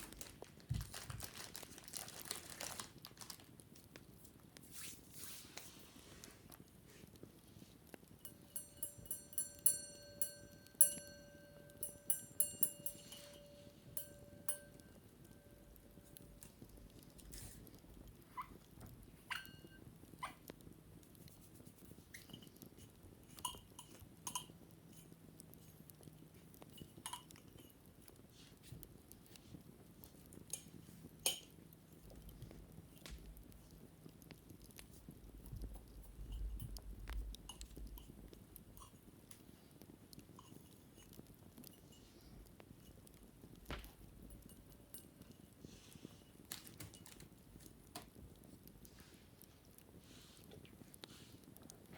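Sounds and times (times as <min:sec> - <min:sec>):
light tapping on ringing object: 0:07.9 - 0:20.2, 0:22.1 - 0:25.1, 0:42.8 - 0:46.0
light clicks and taps: 0:20.4 - 0:51.9.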